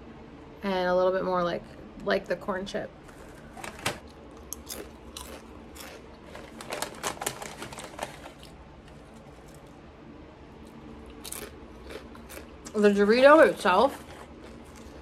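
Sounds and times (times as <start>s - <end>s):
tortilla chip crunching: 4.1s - 9.8s, 10.6s - 13.0s, 13.6s - 15.0s.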